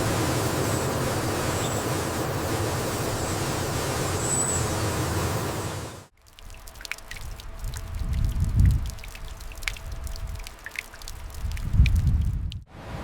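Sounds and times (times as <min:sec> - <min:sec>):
vehicle driving through floodwater: 0:00.0 - 0:06.1.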